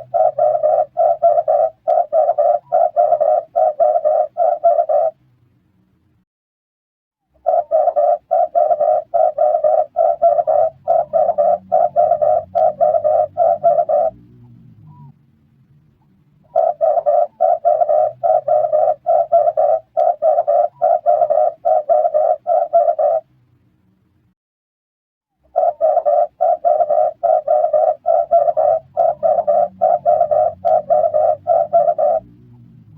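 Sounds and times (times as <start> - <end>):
dove cooing: 0.0 - 5.2, 7.4 - 14.3, 16.4 - 23.3, 25.5 - 32.8.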